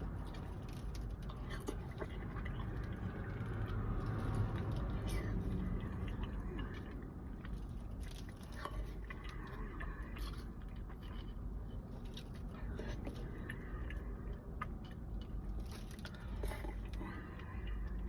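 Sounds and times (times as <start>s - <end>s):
low steady rumble: 0.0s - 18.0s
wet chewing: 0.0s - 18.0s.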